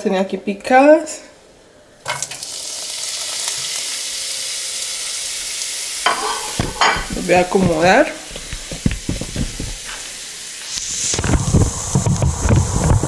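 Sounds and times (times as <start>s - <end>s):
vegetables sizzling in hot oil: 2.0s - 13.0s
knocks: 6.6s - 9.8s.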